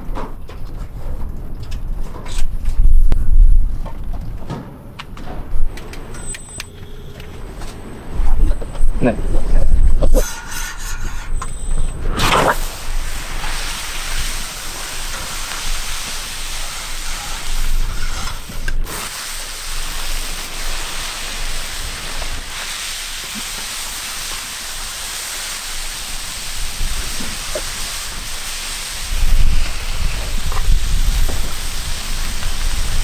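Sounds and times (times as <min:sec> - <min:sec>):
food sizzling in a pan: 0:12.5 - 0:33.0.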